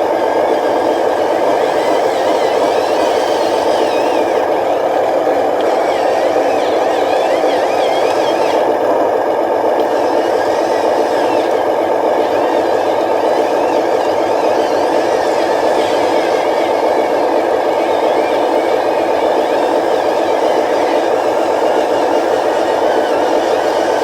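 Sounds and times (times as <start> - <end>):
model engine droning: 0.0 - 24.0.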